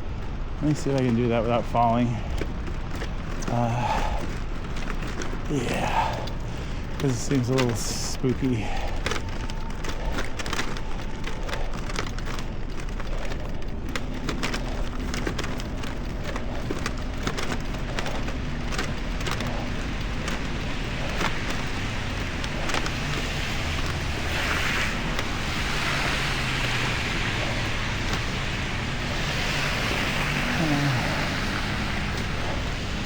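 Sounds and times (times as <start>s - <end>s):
sharp clicks and rattles: 0.0s - 33.0s
bicycle tyres hissing in snow: 3.4s - 4.2s, 5.5s - 11.8s, 17.8s - 33.0s.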